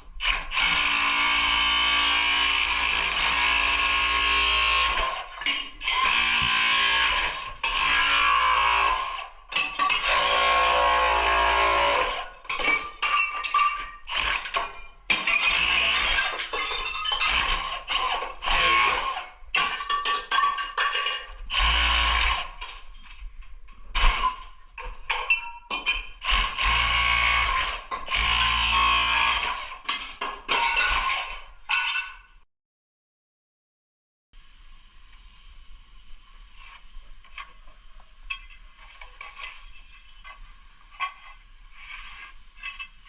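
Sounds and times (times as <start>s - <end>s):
power tool running in bursts: 5.9s - 9.1s, 26.4s - 29.6s.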